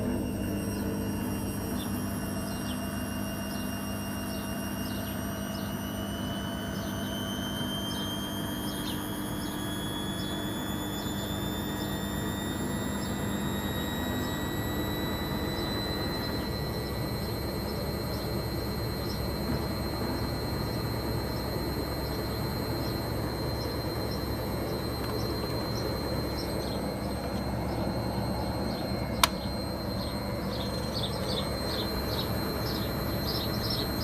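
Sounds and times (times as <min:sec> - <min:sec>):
low hum: 0:00.0 - 0:34.0
washing machine motor whining: 0:00.0 - 0:34.0.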